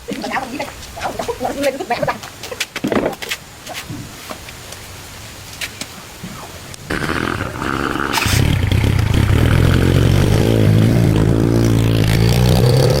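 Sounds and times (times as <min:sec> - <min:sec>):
scooter engine cranking: 0:06.9 - 0:13.0
scooter engine running: 0:06.9 - 0:13.0.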